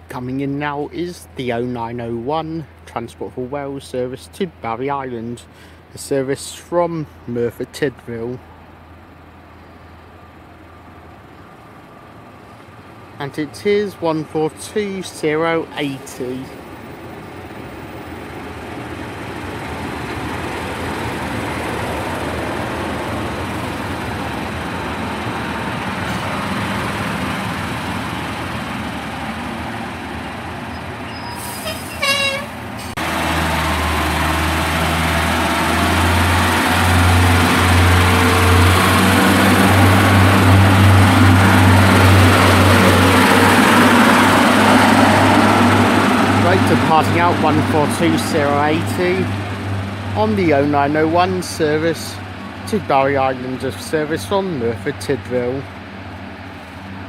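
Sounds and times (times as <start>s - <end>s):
diesel train engines running: 0.0s - 57.0s.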